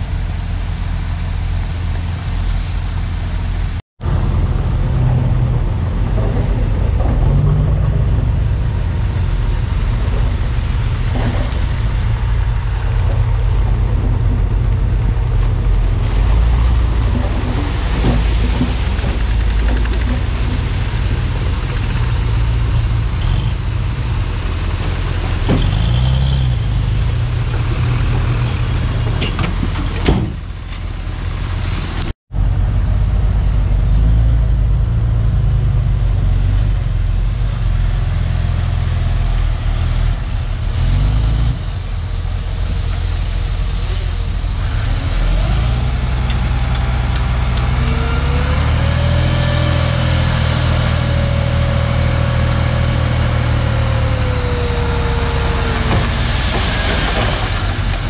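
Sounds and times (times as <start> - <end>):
bulldozer diesel engine: 0.0 - 58.0
machine knocks and clanks: 5.0 - 9.1, 12.8 - 22.5, 28.4 - 30.8.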